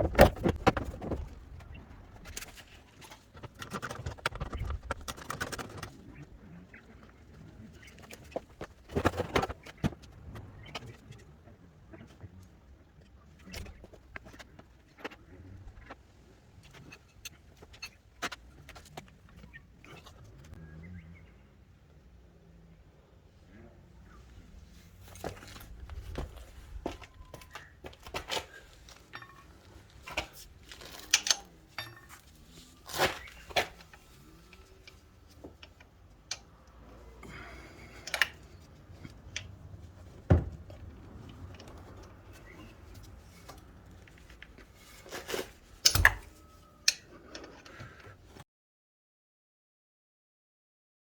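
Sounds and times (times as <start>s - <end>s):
metal hand tools clinking: 29.0s - 36.5s.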